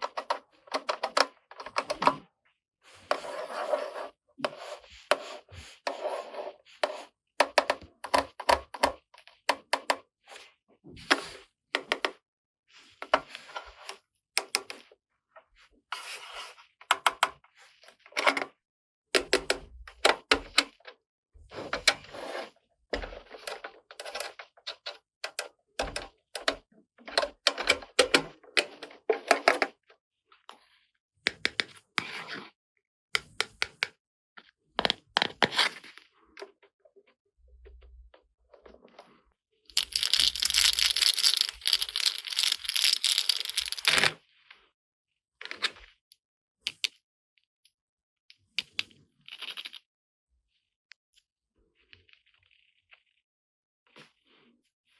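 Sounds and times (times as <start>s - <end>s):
plastic wrapping crinkling: 39.8s - 44.0s
plastic toy pieces clicking: 39.8s - 44.1s.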